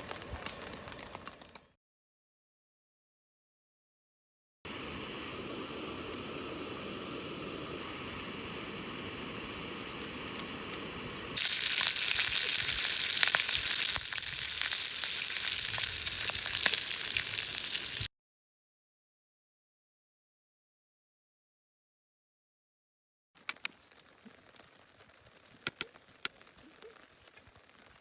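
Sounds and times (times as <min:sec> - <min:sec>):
food sizzling in a hot pan: 0:11.4 - 0:18.1.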